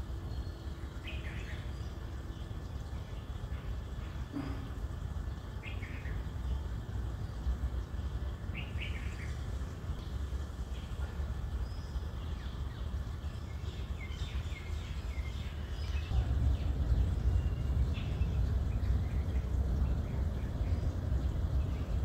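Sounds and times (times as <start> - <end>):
small birds chirping: 0.0 - 22.0
steady low rumble: 6.7 - 22.0.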